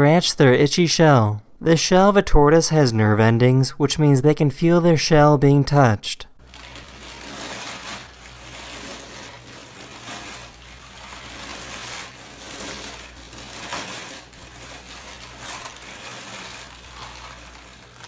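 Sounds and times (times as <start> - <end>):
tortoise shell scratching rasp: 6.4 - 18.0.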